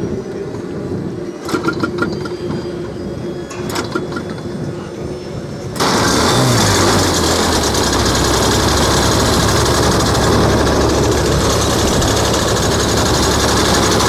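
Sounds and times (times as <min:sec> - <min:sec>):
model plane engine running: 0:05.8 - 0:14.0.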